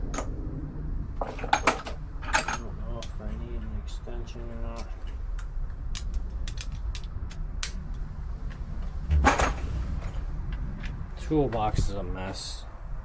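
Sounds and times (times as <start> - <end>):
metal tools clinking in toolbox: 1.3 - 2.7
tools clattering and thumping: 9.1 - 10.2.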